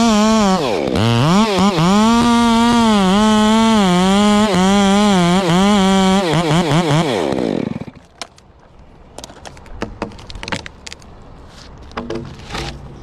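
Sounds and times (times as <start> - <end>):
chainsaw running at high revs: 0.0 - 8.0.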